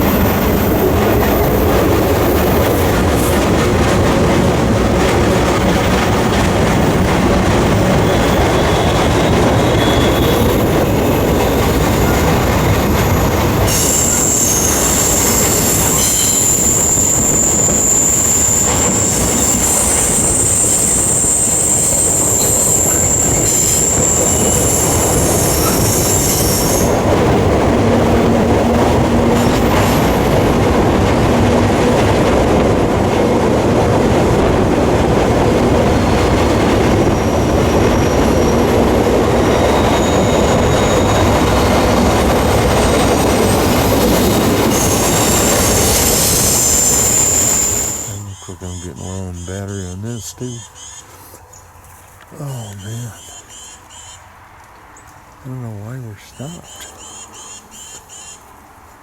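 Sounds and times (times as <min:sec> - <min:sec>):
train wheels rumbling and rattling: 0:00.0 - 0:48.8
high wheel squeal: 0:07.6 - 0:30.4, 0:35.7 - 0:51.2.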